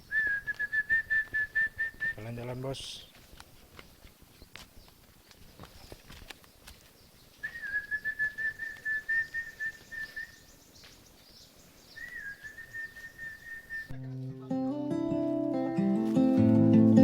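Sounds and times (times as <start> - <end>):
faint outdoor background: 0.0 - 17.0
high fluttering whistled call: 7.4 - 10.7, 11.8 - 13.9.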